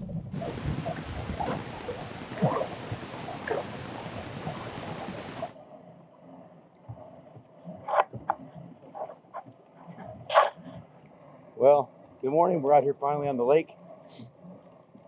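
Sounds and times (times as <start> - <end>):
water sloshing: 0.0 - 5.6.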